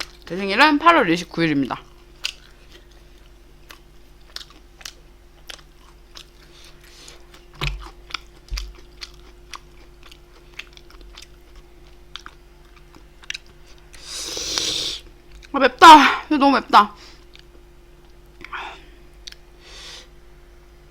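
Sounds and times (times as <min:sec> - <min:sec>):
person chewing food: 0:00.0 - 0:00.3, 0:01.8 - 0:15.5, 0:17.2 - 0:19.5.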